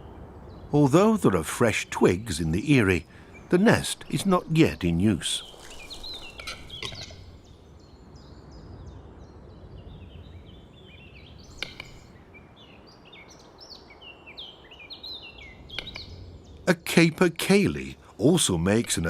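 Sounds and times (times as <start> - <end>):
small birds chirping: 0.0 - 19.0
sharp click: 11.6 - 12.0, 15.7 - 16.1.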